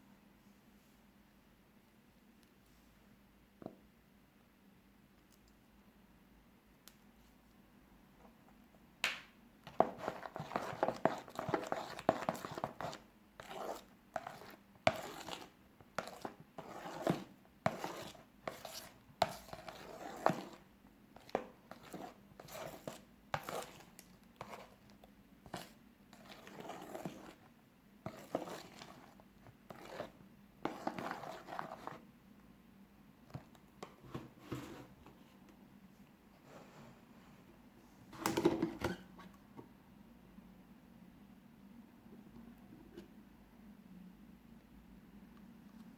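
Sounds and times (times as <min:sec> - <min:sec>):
slime squishing and scraping: 0:09.7 - 0:32.0.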